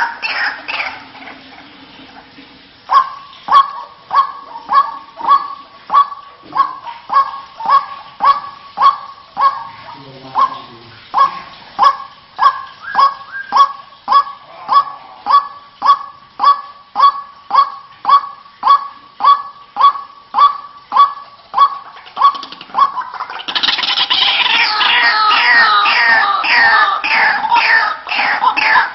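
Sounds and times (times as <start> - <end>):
waterhen calling: 0.0 - 28.9.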